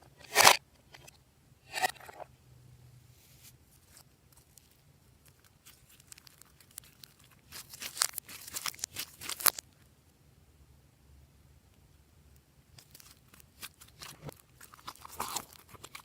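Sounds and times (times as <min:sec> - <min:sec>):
sticky slime crackling and tearing: 0:03.9 - 0:09.6, 0:12.8 - 0:16.0.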